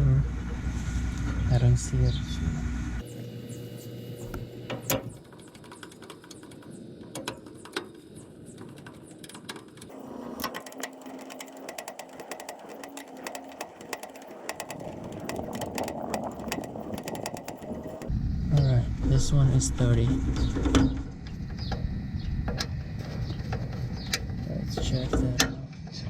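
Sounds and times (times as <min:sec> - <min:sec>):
dense ticking: 0:05.2 - 0:20.1.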